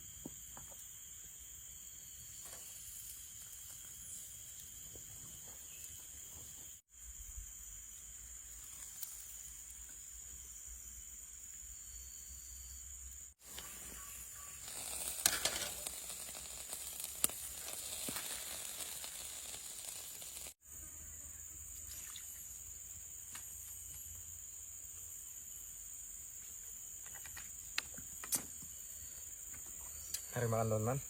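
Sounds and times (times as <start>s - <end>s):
insects droning: 0.0s - 31.0s
food sizzling over fire: 0.9s - 6.9s, 8.3s - 10.1s, 13.3s - 20.6s.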